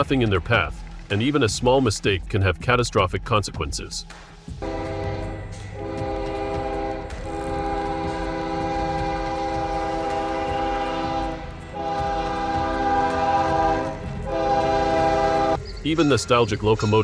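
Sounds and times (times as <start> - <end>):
train rumbling: 0.0 - 17.0
train horn blasts: 4.6 - 15.6.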